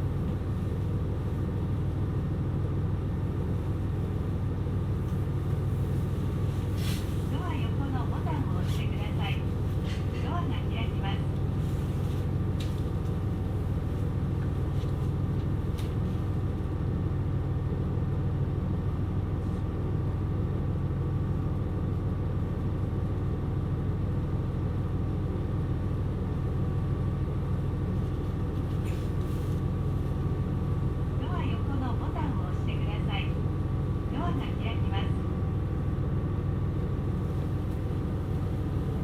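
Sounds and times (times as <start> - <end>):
diesel railcar rumble: 0.0 - 39.0.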